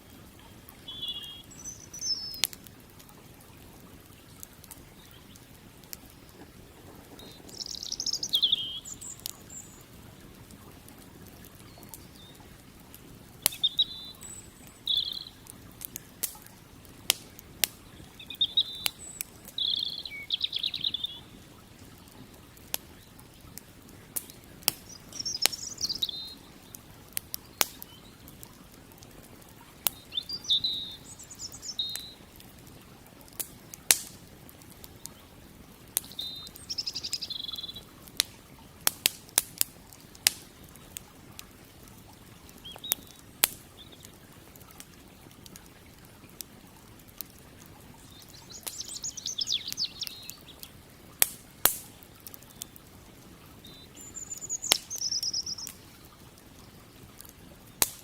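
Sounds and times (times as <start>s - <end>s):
campfire crackling and popping: 0.0s - 58.0s
bird chirping: 0.4s - 2.5s, 7.1s - 10.0s, 13.4s - 15.4s, 18.0s - 21.4s, 24.8s - 26.8s, 29.9s - 32.2s, 36.1s - 37.9s, 48.0s - 50.6s, 53.6s - 56.1s.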